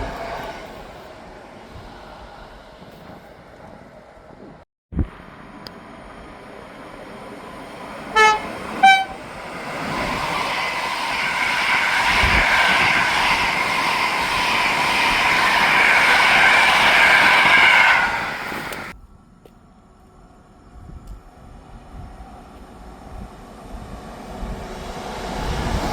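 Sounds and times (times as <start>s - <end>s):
train passing with whine: 0.0s - 25.9s
train horn blasts: 8.1s - 9.3s.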